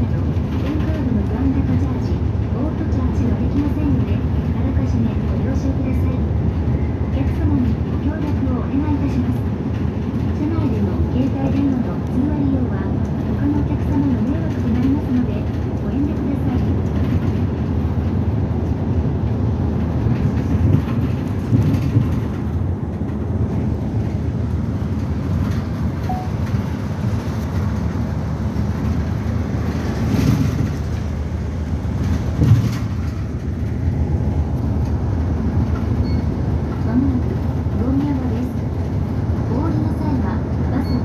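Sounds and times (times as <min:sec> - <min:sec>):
bus engine and road rumble: 0:00.0 - 0:41.0
knocks and rattles: 0:19.8 - 0:22.6, 0:31.9 - 0:33.8.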